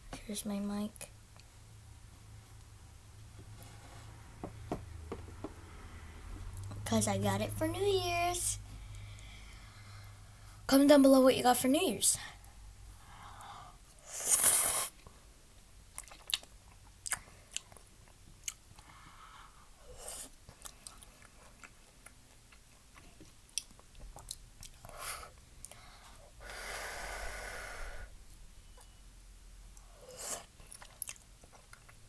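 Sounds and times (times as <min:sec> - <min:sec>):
chewing noodles: 0:15.9 - 0:18.8, 0:20.2 - 0:25.0, 0:29.8 - 0:32.0.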